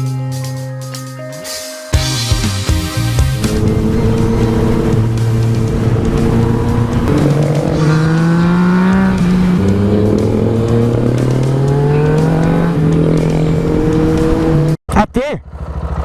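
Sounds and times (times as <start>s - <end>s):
motorcycle engine revving: 2.8s - 14.8s, 15.4s - 16.0s.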